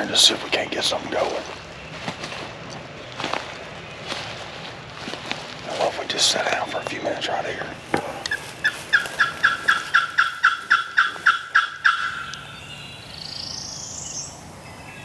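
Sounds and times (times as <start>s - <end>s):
turkey yelps: 8.2s - 12.6s.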